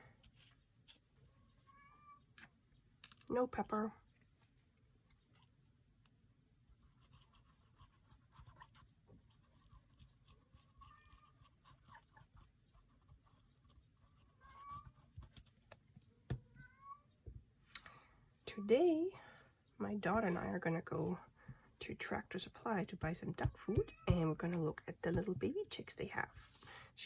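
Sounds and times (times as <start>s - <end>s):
cat meowing faintly: 10.7s - 11.5s.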